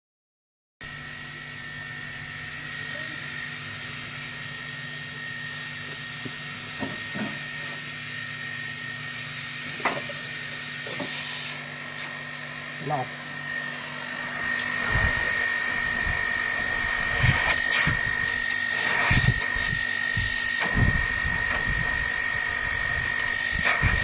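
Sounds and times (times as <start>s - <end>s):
air conditioner running: 0.9s - 24.0s
high whine: 9.7s - 24.0s.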